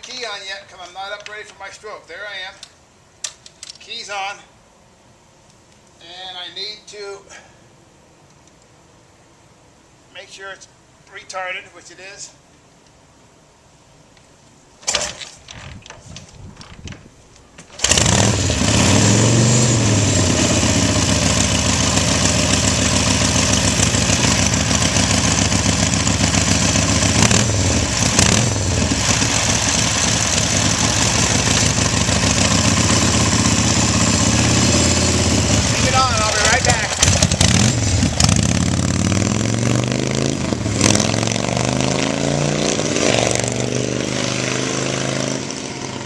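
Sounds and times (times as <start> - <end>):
motorcycle kick-start: 17.7 - 20.0, 36.1 - 38.5
motorcycle engine running: 17.8 - 41.0.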